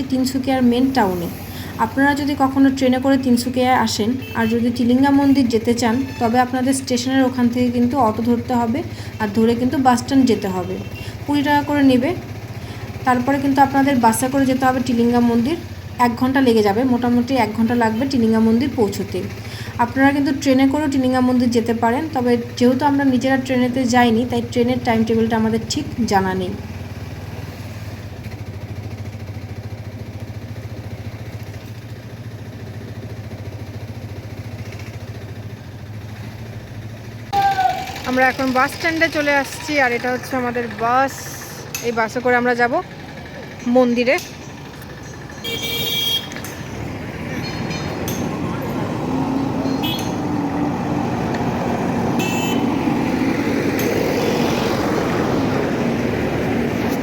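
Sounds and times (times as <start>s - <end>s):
auto-rickshaw engine running: 0.0s - 57.0s
road noise: 0.0s - 57.0s
metallic clinks: 43.6s - 48.7s, 49.6s - 50.4s.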